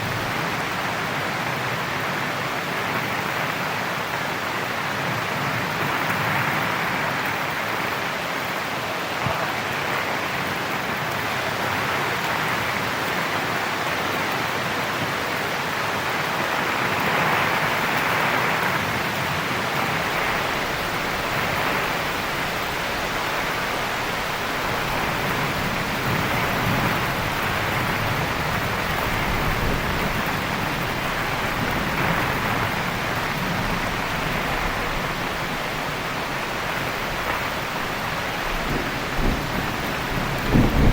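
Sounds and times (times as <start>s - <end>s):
heavy steady rain: 0.0s - 40.9s
distant thunder rumble: 19.8s - 40.9s.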